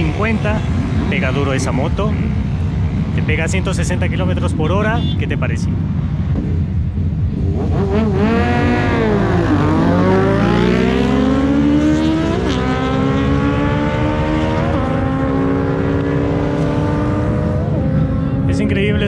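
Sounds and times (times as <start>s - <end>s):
motorcycle engine at full throttle: 5.8s - 19.0s.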